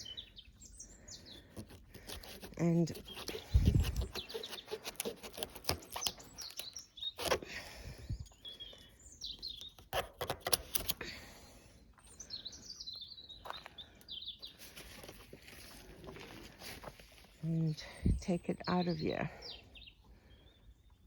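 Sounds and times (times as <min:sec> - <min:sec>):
small birds chirping: 0:00.0 - 0:21.0
leaves rustling: 0:14.6 - 0:17.8.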